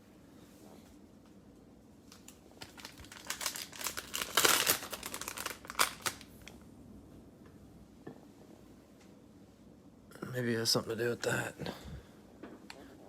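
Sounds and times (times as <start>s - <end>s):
plastic wrapper crinkling: 2.1s - 6.6s.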